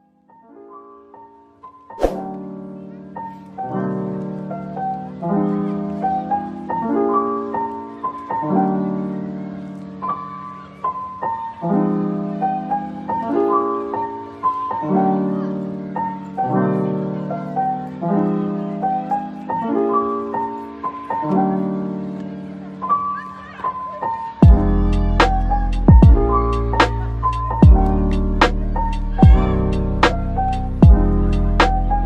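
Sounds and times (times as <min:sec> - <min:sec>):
piano chords and melody: 0:00.0 - 0:32.0.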